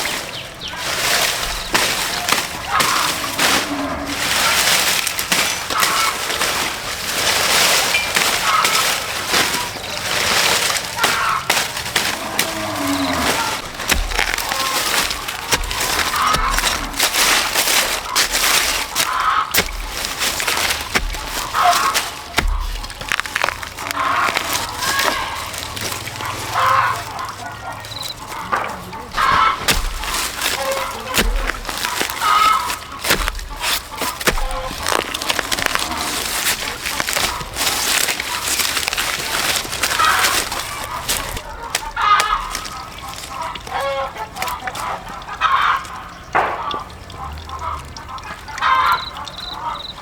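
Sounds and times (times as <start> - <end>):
chickens clucking: 0.0 - 50.0
sharp knocks and clatters: 46.4 - 46.9.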